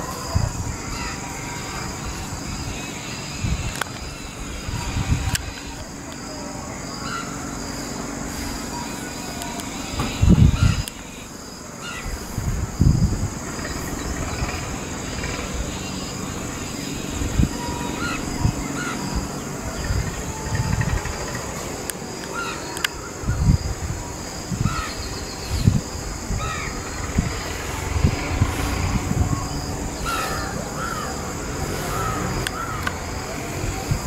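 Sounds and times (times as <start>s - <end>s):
birds calling: 0.0s - 34.0s
high-pitched drone: 13.5s - 34.0s.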